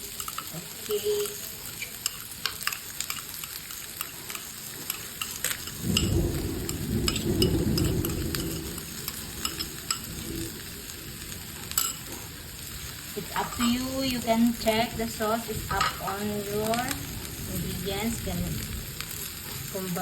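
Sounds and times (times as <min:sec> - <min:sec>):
chicken sizzling in a pan: 0:00.0 - 0:20.0
stirring clicks and scrapes: 0:00.1 - 0:10.4, 0:11.6 - 0:12.3.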